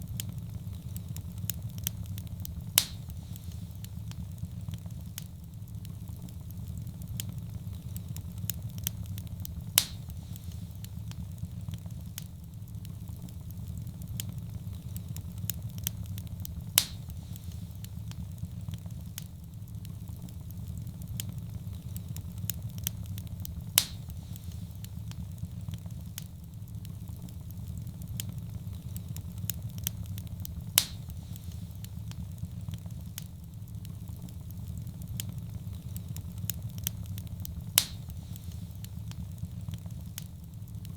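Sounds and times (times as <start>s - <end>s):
fire crackling: 0.0s - 40.9s
fire flames rumbling: 0.0s - 40.9s
fire pops: 0.0s - 40.9s.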